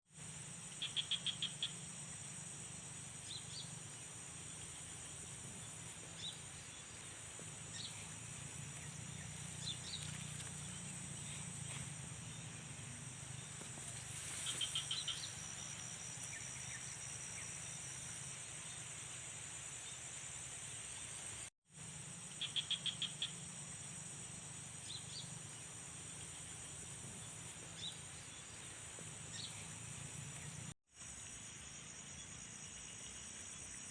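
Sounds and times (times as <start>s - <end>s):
crickets and insects chirring: 0.1s - 33.9s
frogs calling in rapid pulses: 0.5s - 2.8s, 22.3s - 24.3s.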